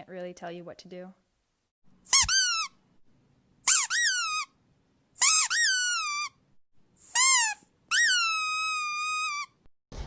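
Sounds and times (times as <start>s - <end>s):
squeaky dog toy squeaking: 2.1s - 2.8s, 3.6s - 4.6s, 5.2s - 6.4s, 7.0s - 9.7s.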